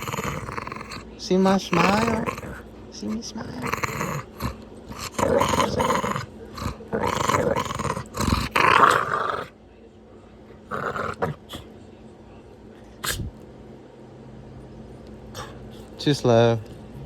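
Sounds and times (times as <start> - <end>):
dog growling: 0.0 - 9.6, 10.4 - 11.8, 13.0 - 13.4, 15.3 - 16.0.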